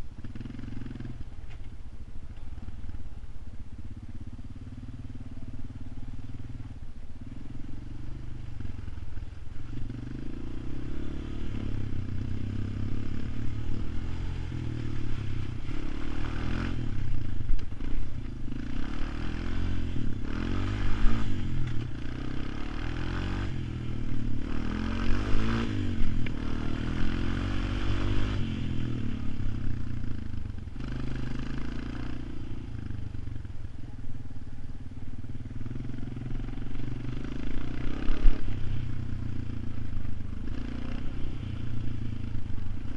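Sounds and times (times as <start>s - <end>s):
atv engine revving: 0.0s - 1.6s, 3.8s - 33.5s, 34.7s - 42.9s.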